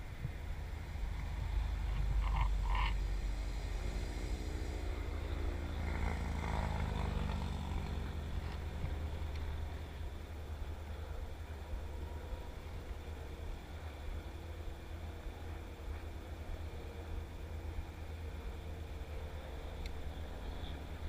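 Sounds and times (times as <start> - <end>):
steady low rumble: 0.0 - 21.0
frog croaking: 1.1 - 3.0.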